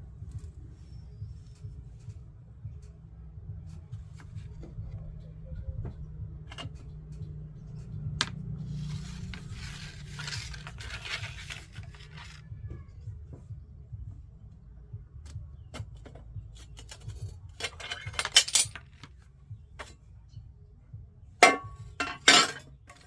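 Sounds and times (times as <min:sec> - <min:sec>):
glass rattling and scraping: 0:16.7 - 0:19.0, 0:21.4 - 0:23.0.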